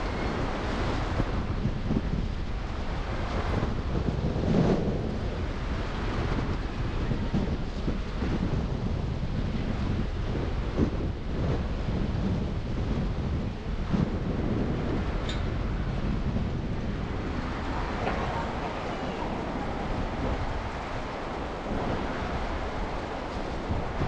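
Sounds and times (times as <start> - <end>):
wind buffeting microphone: 0.0 - 24.0
car road and traffic rumble: 12.4 - 24.0.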